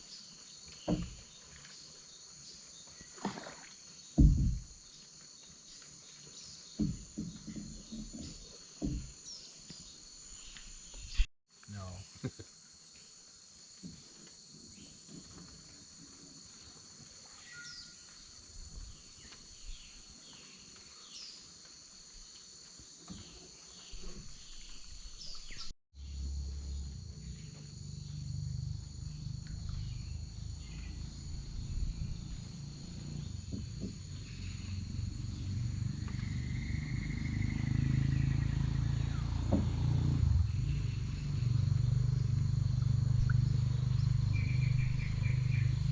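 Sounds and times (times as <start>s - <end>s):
insect chorus buzzing: 0.0s - 45.9s
low rumble: 26.0s - 37.6s, 40.4s - 45.9s.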